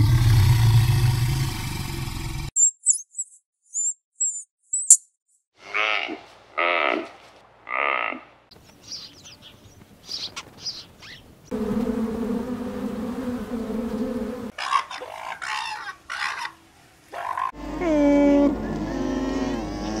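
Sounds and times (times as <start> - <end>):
high short chirping calls: 2.6 - 5.2
insect buzzing: 11.5 - 14.5.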